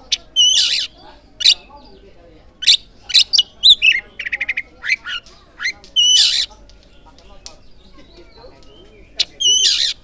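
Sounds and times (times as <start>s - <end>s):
harsh rasping bird call: 0.0s - 1.6s, 9.4s - 10.0s
magpie-robin singing: 0.0s - 10.0s.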